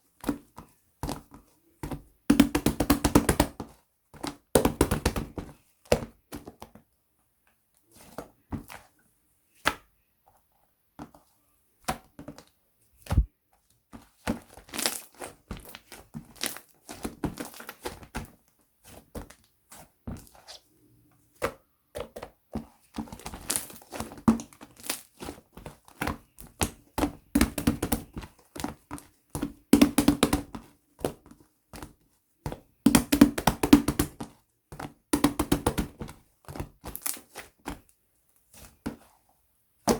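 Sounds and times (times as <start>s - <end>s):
slime squelching and popping: 14.4s - 18.2s, 23.0s - 30.5s, 35.0s - 37.9s.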